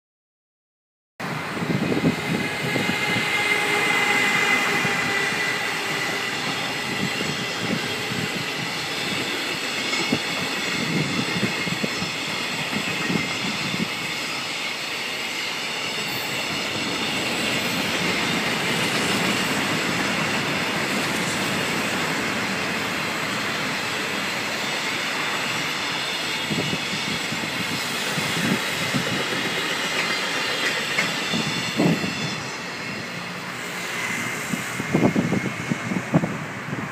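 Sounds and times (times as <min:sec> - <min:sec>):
train wheels rumbling on rail: 0:01.2 - 0:36.9
high wheel squeal: 0:01.6 - 0:36.8
wheels clacking over rail joints: 0:15.8 - 0:26.7, 0:27.3 - 0:32.5.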